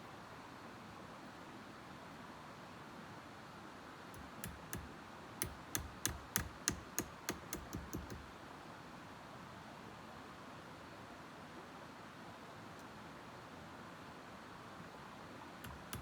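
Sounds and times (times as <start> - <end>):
sharp knocks: 4.2 - 8.2.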